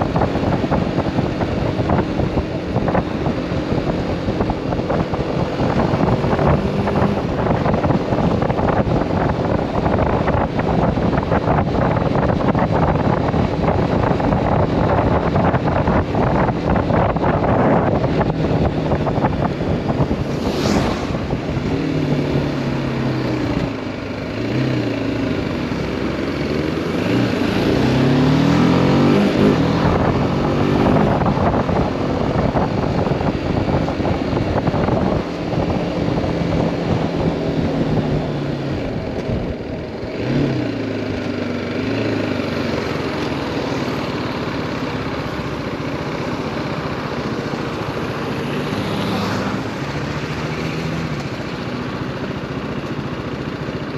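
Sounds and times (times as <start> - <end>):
wind noise on microphone: 0.0 - 41.2
motorcycle engine accelerating: 0.0 - 53.9.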